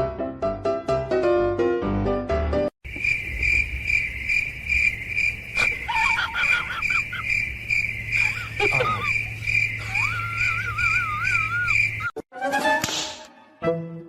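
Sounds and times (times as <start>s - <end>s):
piano music: 0.0s - 2.7s
insect chirping: 2.8s - 12.2s
high wavering calls: 3.1s - 12.2s.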